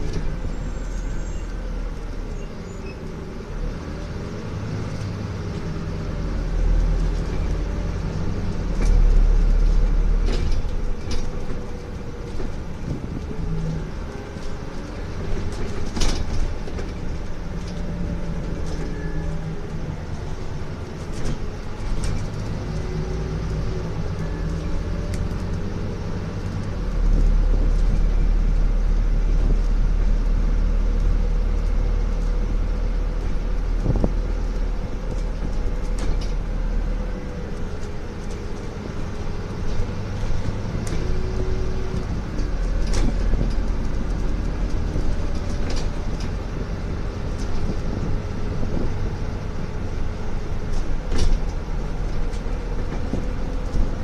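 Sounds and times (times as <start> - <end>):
bus body rattling: 0.0 - 54.0
bus diesel engine: 0.0 - 54.0.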